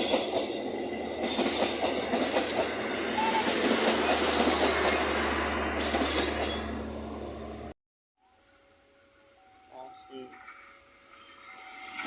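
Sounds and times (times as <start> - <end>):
train wheels clattering on rails: 0.0 - 6.8.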